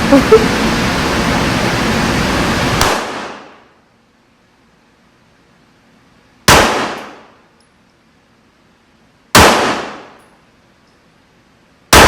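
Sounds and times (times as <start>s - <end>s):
steady rushing noise: 0.0s - 3.7s
loud gunshot: 2.8s - 3.6s, 6.5s - 7.3s, 9.3s - 10.2s.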